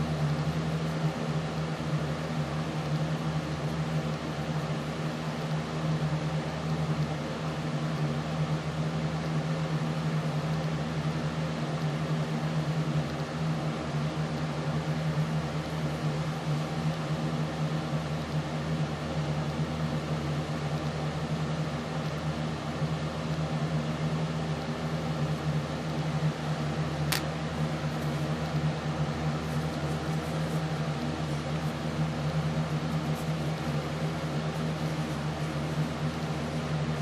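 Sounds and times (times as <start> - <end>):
low mechanical hum with hiss: 0.0 - 37.0
sharp click: 27.1 - 27.3.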